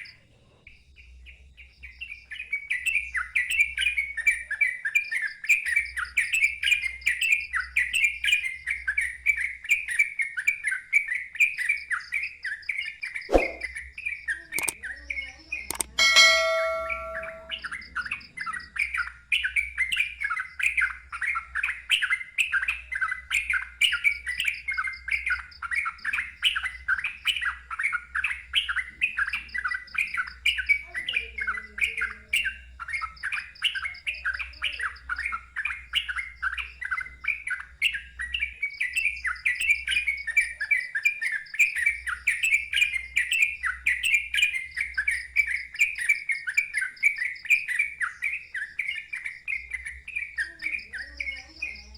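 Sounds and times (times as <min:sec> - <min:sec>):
faint high-pitched trill: 0:15.7 - 0:17.7
bulbul singing down-slurred notes: 0:15.8 - 0:17.7.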